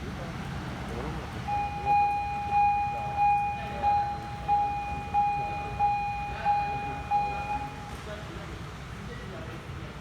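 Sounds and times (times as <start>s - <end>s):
level crossing warning bell: 1.5s - 7.8s.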